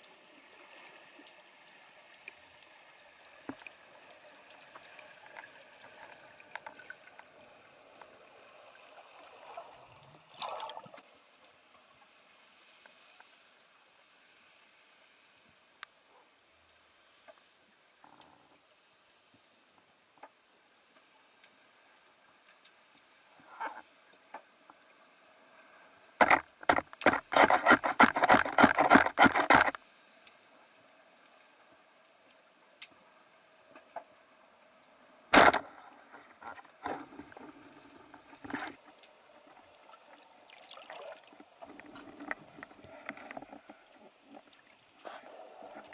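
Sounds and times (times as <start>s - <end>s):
water gurgle: 0.0s - 12.3s, 35.2s - 45.9s
steady hiss of water: 0.0s - 45.9s
underwater clicks and crackles: 0.0s - 45.9s
rapid loud clicks and knocks: 26.2s - 29.8s.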